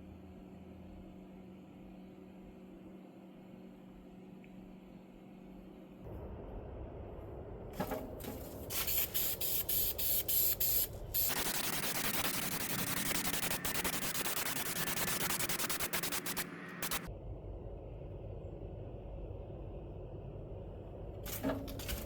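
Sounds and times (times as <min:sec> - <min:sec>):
spray paint hissing: 0:08.7 - 0:17.1.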